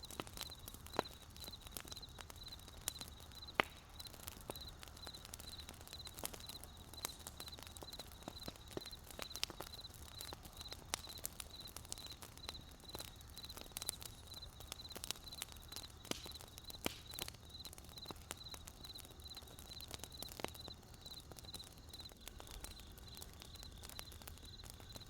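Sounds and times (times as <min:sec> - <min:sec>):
campfire crackling: 0:00.0 - 0:25.0
crickets chirping: 0:00.0 - 0:25.0.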